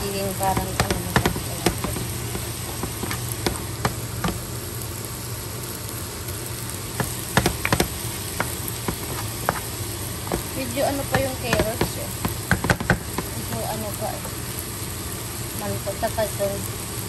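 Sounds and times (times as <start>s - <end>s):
rice sizzling in a pan: 0.0s - 17.0s
steady low hum: 0.0s - 17.0s
wooden spoon scraping a pan: 7.0s - 12.0s.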